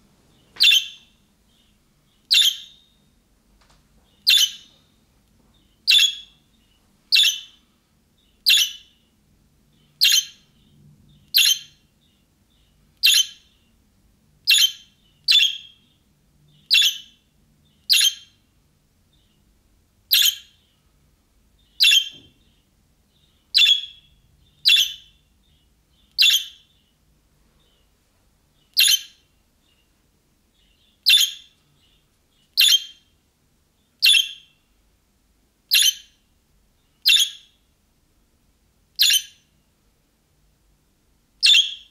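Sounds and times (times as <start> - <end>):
budgerigar contact calls: 0.6 - 1.7, 4.2 - 4.7, 5.9 - 6.3, 23.5 - 25.1, 32.6 - 33.0, 41.4 - 41.9.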